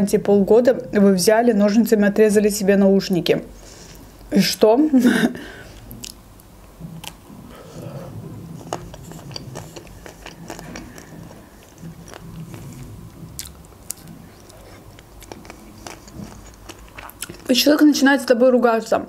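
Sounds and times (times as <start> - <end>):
soft wet mouth sounds: 5.7 - 6.2, 6.9 - 17.5
chocolate shell crackling: 14.0 - 17.7.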